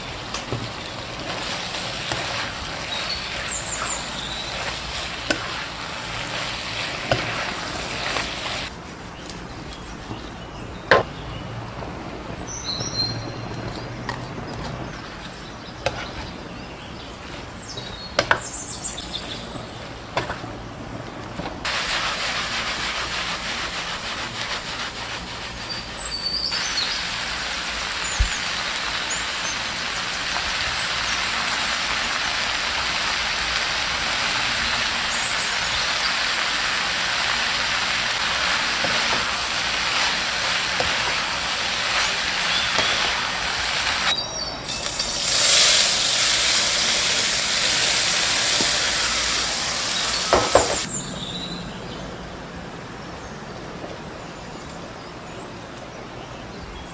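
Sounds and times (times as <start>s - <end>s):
food sizzling in a hot pan: 0.0s - 8.7s, 21.7s - 50.9s.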